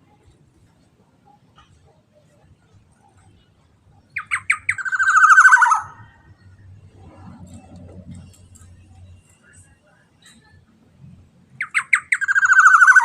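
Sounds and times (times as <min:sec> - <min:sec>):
bird calling: 0:04.0 - 0:06.4, 0:11.6 - 0:13.0.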